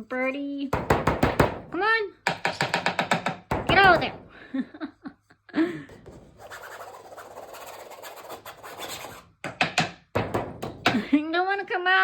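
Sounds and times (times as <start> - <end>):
sharp knocks: 0.8 - 4.3, 9.4 - 11.0
rustling and rubbing: 6.0 - 9.3.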